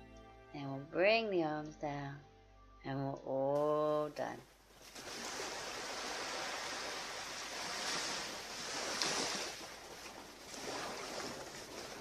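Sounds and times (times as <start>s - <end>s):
ocean waves breaking on beach: 4.8s - 12.0s.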